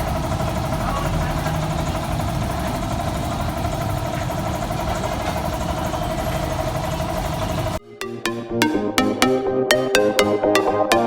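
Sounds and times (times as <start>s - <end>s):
constant whine: 0.0s - 7.8s
engine running steadily: 0.0s - 7.8s.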